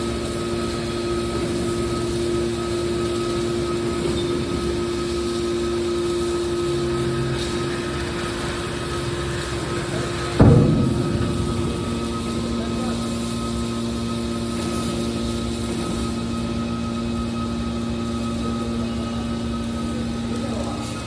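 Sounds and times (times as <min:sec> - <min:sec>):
hydraulic power unit humming: 0:06.4 - 0:19.6
high machine whine: 0:10.4 - 0:18.0.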